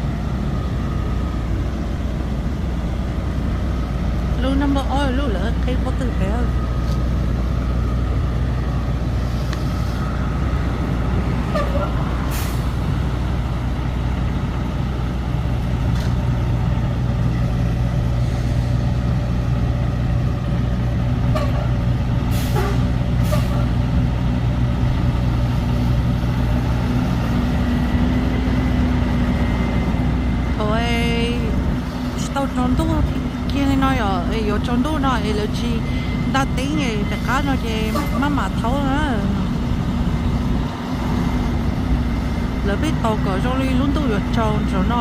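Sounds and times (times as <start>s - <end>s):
truck engine droning: 0.0s - 45.0s.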